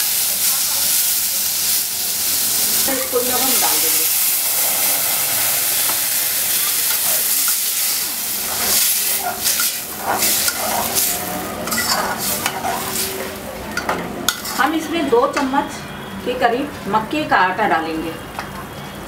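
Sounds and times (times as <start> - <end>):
greens sizzling in oil: 0.0 - 15.7
metal spoon scraping pan: 2.9 - 14.8.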